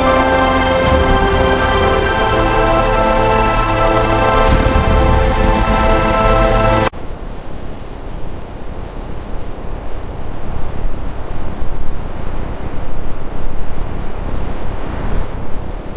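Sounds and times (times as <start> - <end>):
low uneven rushing noise: 0.0 - 6.9
music with held chord: 0.0 - 6.9.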